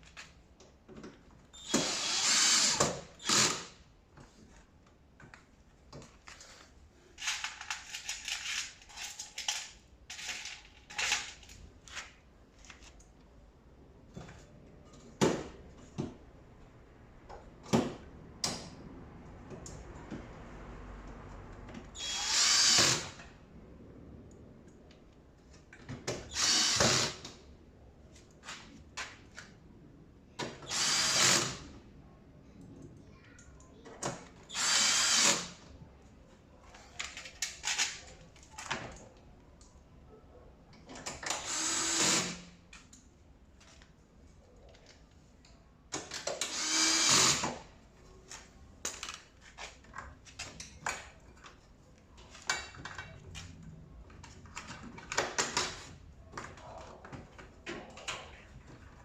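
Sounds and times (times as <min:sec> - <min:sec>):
cordless drill driving screws: 0:01.6 - 0:03.8, 0:22.0 - 0:23.2, 0:26.3 - 0:27.3, 0:30.6 - 0:31.7, 0:34.5 - 0:35.6, 0:41.3 - 0:42.5, 0:46.3 - 0:47.6.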